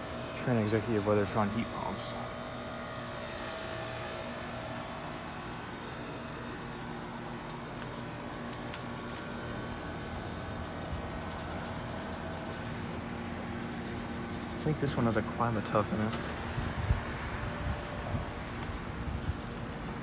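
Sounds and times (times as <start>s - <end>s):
heat pump machine hum: 0.0s - 20.0s.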